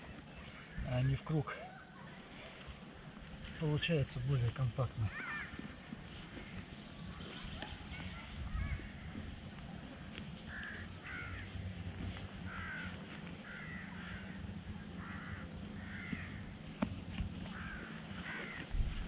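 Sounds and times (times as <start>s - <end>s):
bird harsh calls: 5.0s - 9.3s, 10.5s - 16.5s, 17.4s - 19.0s.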